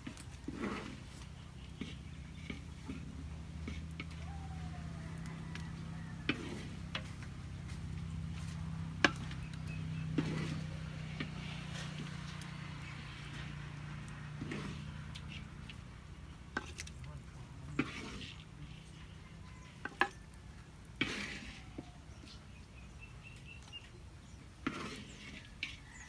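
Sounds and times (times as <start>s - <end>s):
utensils clicking against pot: 9.0s - 15.9s, 16.5s - 18.6s.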